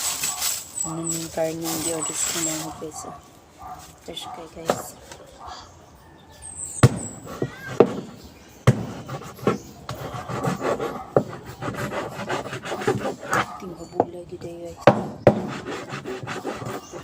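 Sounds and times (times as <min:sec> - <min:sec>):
rasping scrape: 0:08.8 - 0:13.7, 0:15.2 - 0:17.0
knife sawing through meat: 0:09.0 - 0:13.6, 0:15.4 - 0:17.0.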